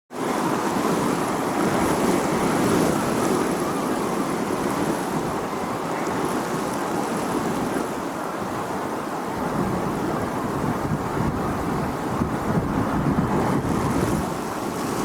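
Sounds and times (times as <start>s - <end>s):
wind blowing: 9.3s - 15.0s.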